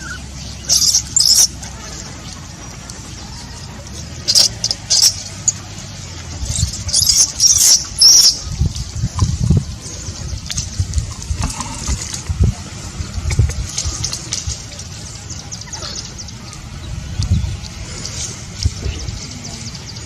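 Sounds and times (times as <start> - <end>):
monkey squeaking: 0.0 - 1.6, 4.0 - 5.6, 6.4 - 9.6.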